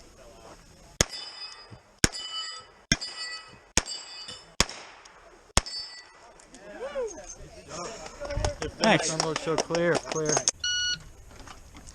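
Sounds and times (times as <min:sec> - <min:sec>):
steel targets ringing: 0:01.0 - 0:04.6, 0:05.6 - 0:06.3.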